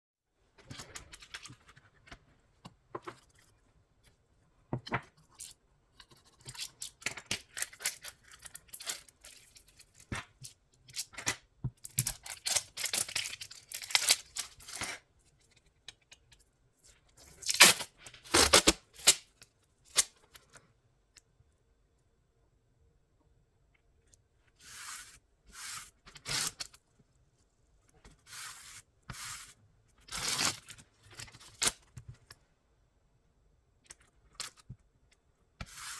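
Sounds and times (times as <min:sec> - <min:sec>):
adhesive tape ripping: 0:17.4 - 0:19.2.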